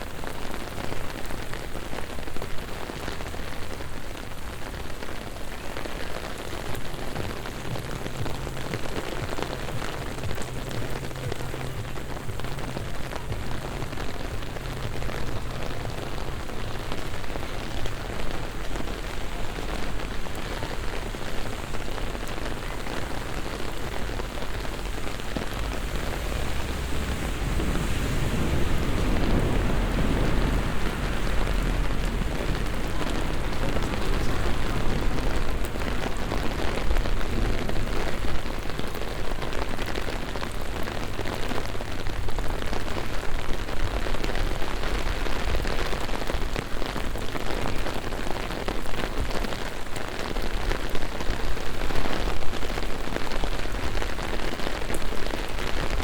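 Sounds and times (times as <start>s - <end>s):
heavy rain on pavement: 0.0s - 56.0s
low rumble: 6.7s - 39.5s.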